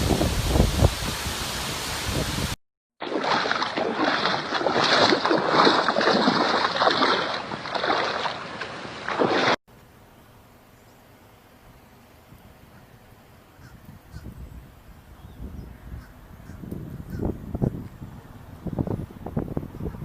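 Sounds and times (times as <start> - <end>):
hurricane wind: 0.0 - 2.6, 13.7 - 20.0
water rushing: 0.0 - 9.6.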